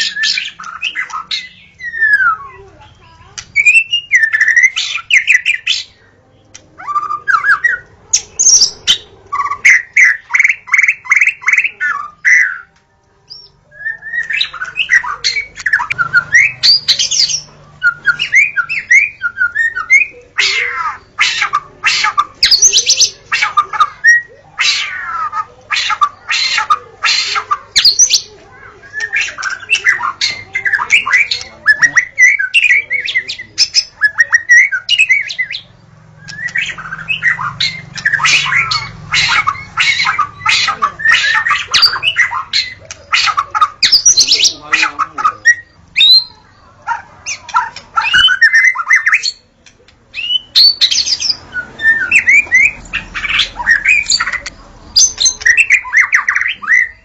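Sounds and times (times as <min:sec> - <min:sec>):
songbird singing whistles: 0:00.0 - 0:02.6, 0:03.6 - 0:06.0, 0:13.3 - 0:20.7, 0:27.3 - 0:44.6, 0:45.4 - 0:46.5, 0:47.3 - 0:49.4, 0:50.1 - 0:57.0.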